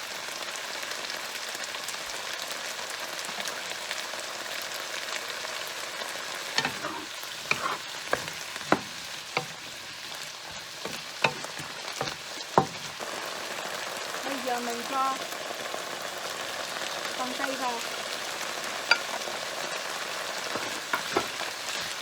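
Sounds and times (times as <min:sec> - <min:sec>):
vegetables sizzling in a frying pan: 0:00.0 - 0:22.0
utensil knocking against a pan: 0:06.6 - 0:09.8, 0:10.5 - 0:13.0, 0:20.5 - 0:22.0.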